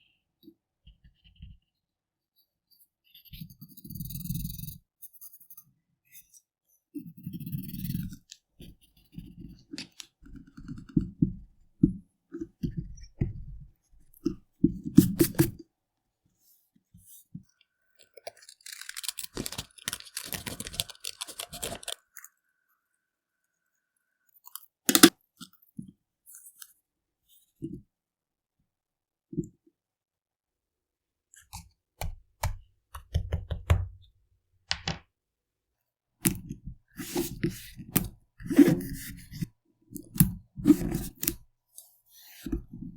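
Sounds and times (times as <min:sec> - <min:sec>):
paper scratching: 0:18.5 - 0:22.0, 0:40.7 - 0:41.4
pen cap clicks: 0:24.9 - 0:25.1
pens and paper tapping: 0:24.9 - 0:25.1, 0:32.0 - 0:34.0, 0:34.7 - 0:35.0.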